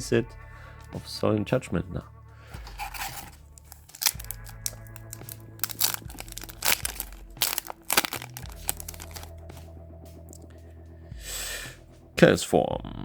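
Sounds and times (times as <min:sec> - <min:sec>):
background music: 0:00.0 - 0:13.0
cards rustling: 0:02.6 - 0:09.3
foil wrapper crinkling and tearing: 0:02.6 - 0:09.3.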